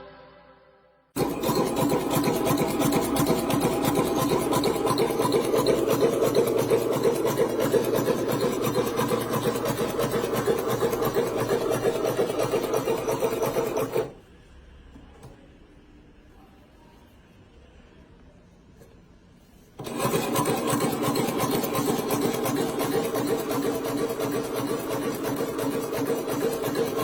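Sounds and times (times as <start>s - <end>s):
sewing machine stitching clatter: 1.2s - 14.1s, 19.8s - 27.0s.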